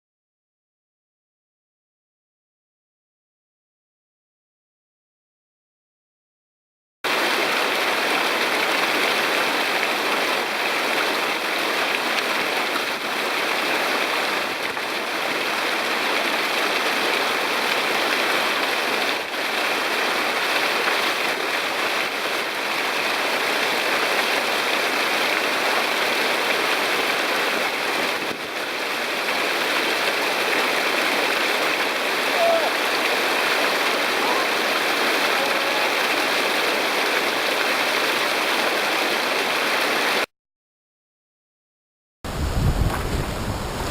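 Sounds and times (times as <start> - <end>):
creek whitewater rushing: 7.1 - 40.3.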